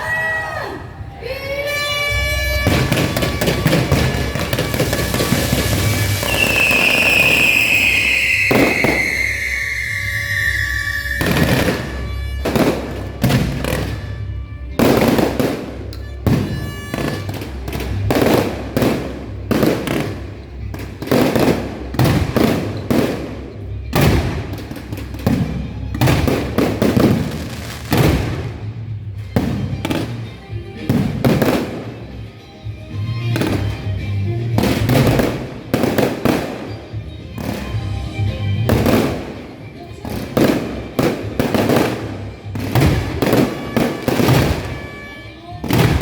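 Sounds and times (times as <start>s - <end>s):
fireworks banging with echoes: 1.7s - 46.0s.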